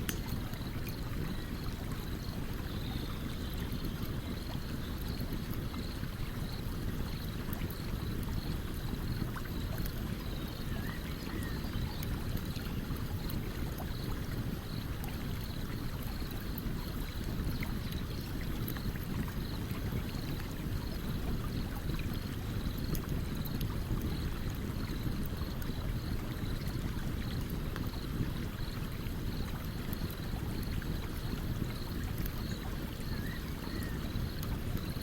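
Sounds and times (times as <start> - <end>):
campfire crackling and popping: 0.0 - 1.9
stream running: 0.0 - 35.0.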